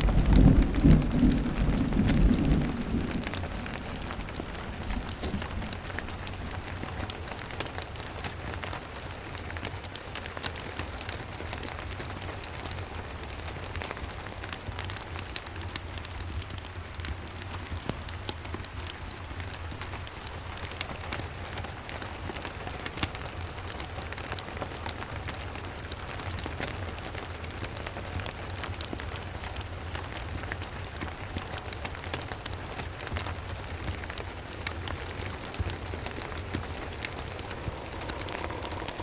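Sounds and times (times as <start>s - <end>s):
low rumble: 0.0s - 7.0s, 35.4s - 39.0s
wood fire crackling: 0.0s - 12.7s, 28.0s - 39.0s
steady rain: 0.0s - 39.0s.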